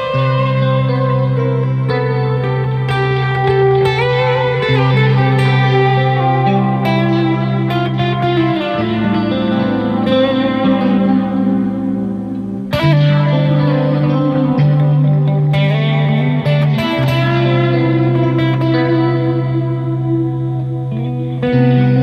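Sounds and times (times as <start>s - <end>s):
electric guitar chords with reverb: 0.0s - 22.0s.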